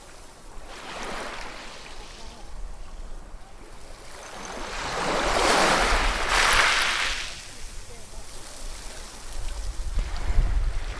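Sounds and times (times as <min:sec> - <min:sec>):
ocean waves breaking: 0:04.0 - 0:08.5.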